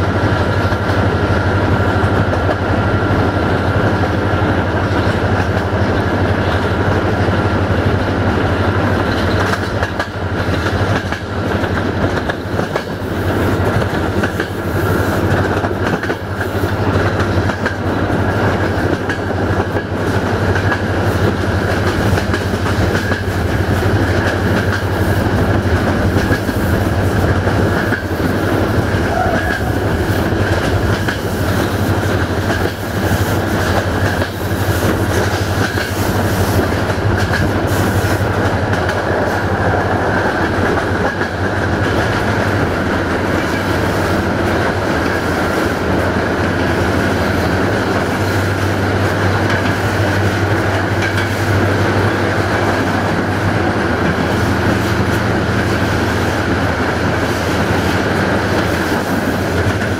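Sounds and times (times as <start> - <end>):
train rolling rumble: 0.0 - 59.9
wheels clicking over rail joints: 9.0 - 56.0.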